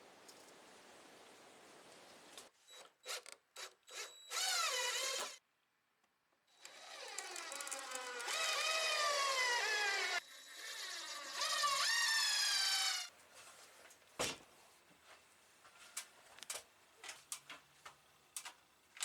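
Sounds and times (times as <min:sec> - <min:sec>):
power tool motor whining: 0:06.6 - 0:13.1.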